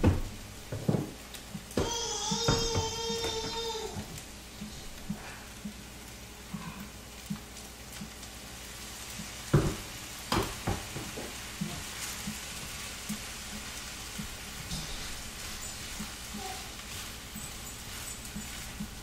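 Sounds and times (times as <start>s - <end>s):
rice sizzling in a skillet: 0.0s - 19.0s
utensil knocking against pan: 1.8s - 3.6s.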